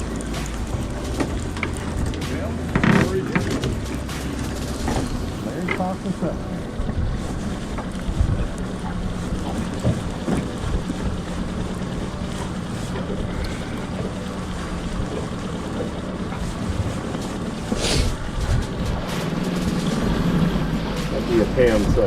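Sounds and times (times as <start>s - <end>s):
boat motor humming: 0.0s - 22.0s
water rushing: 0.0s - 22.0s
wind: 0.0s - 22.0s
brief hiss: 17.8s - 18.2s.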